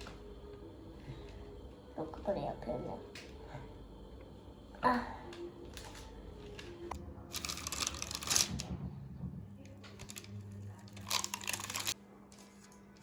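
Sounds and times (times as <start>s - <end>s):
faint steady hum: 0.0s - 8.4s
rustling crinkling handling noise: 7.3s - 8.7s, 10.0s - 13.0s.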